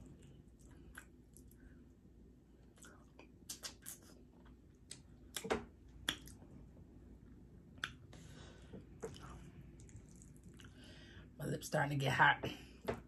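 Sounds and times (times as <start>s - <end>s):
chewing with mouth clicks: 0.0s - 1.6s, 2.6s - 6.4s, 9.0s - 10.8s
lip smacks: 0.6s - 1.6s, 2.8s - 6.4s, 7.7s - 8.1s.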